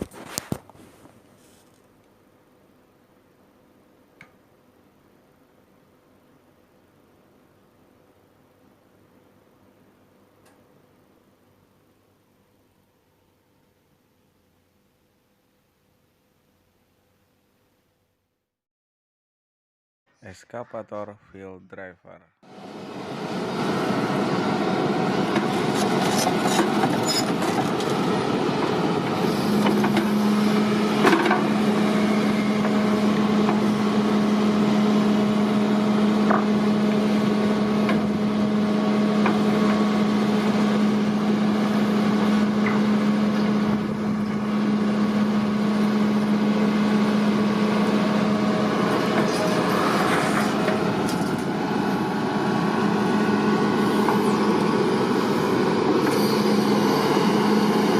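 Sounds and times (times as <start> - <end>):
engine and hydraulic noise: 22.4 - 57.9.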